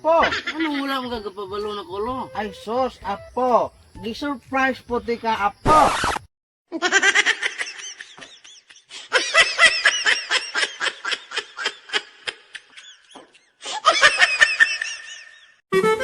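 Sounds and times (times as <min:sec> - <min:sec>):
high-pitched laughter: 0:06.7 - 0:15.6.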